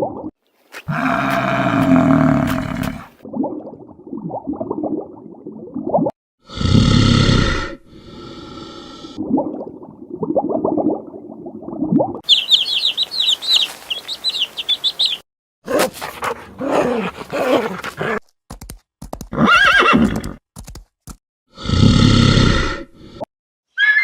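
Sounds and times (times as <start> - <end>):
animal low calls: 0.8 - 3.2
songbird chirping in trills: 12.2 - 15.2
chicken clucking: 12.3 - 15.2.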